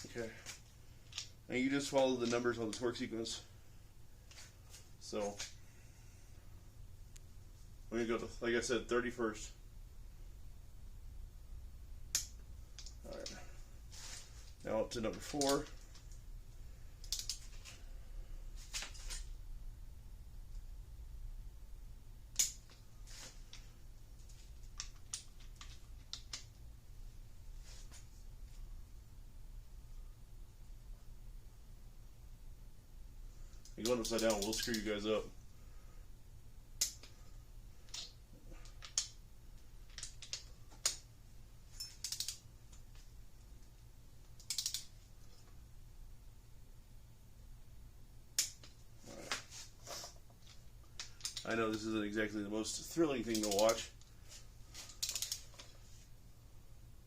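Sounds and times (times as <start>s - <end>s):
torque wrench clicking: 42.0s - 42.4s, 44.4s - 44.9s, 55.0s - 55.4s.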